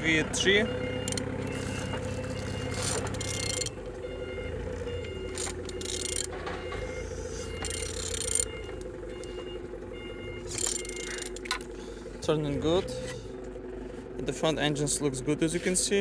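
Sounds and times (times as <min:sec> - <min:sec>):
mechanical scraping: 0:00.9 - 0:03.8, 0:04.7 - 0:08.8, 0:10.4 - 0:13.4
ratchet-like clicking: 0:01.0 - 0:01.2, 0:03.1 - 0:03.7, 0:05.3 - 0:06.3, 0:07.6 - 0:08.5, 0:10.5 - 0:11.6.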